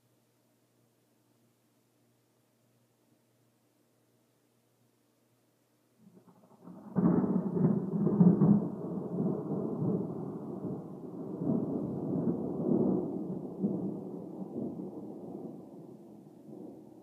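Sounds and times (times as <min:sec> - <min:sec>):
thunder rumbling: 0:06.1 - 0:17.0.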